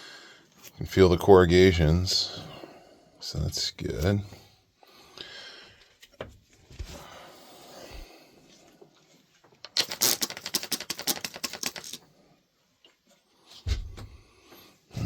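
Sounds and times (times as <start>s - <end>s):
shears snipping paper towel: 9.8s - 12.0s.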